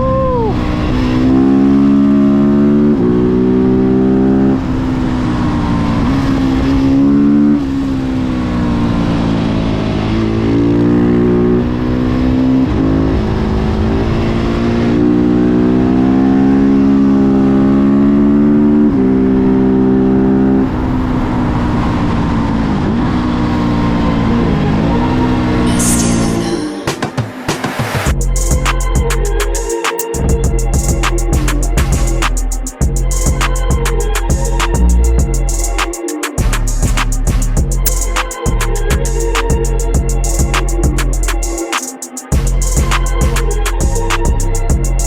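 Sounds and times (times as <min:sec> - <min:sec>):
motorcycle engine revving: 0:00.7 - 0:26.6.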